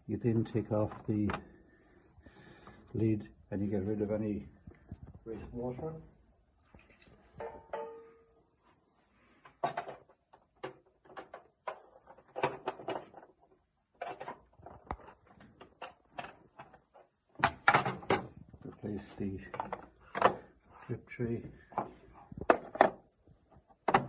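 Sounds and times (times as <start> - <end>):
plastic parts clattering: 9.2 - 24.0.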